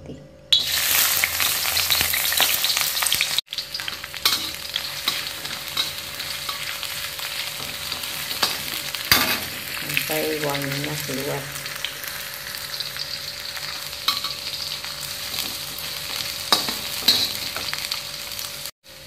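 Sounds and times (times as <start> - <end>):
shallots sizzling in hot oil: 0.6 - 19.0
spatula scraping and tapping: 3.8 - 6.8, 15.3 - 17.8.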